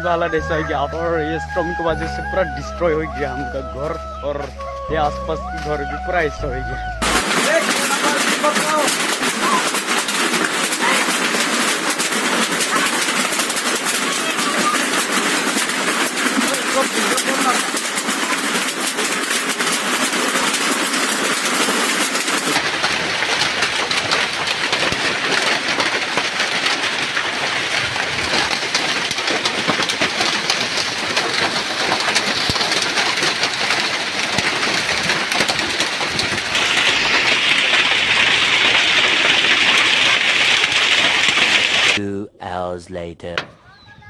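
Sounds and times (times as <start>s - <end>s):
heavy hail and rain clattering: 7.0s - 42.0s.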